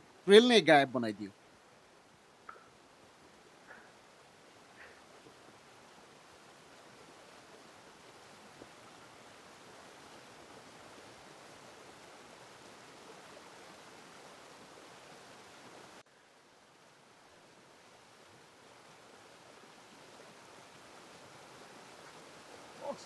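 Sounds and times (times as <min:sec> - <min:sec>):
stream running over rocks: 0:00.0 - 0:23.0.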